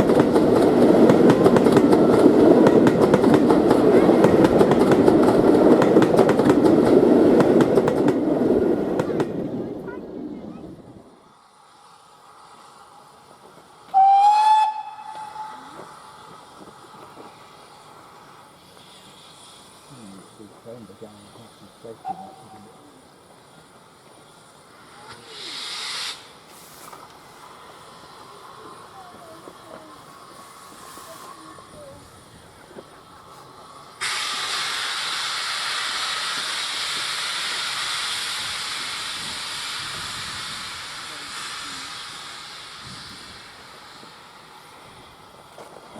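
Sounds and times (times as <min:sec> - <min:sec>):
steam hissing: 0:00.0 - 0:45.9
steam locomotive whistle blast: 0:13.9 - 0:16.0, 0:22.0 - 0:22.6.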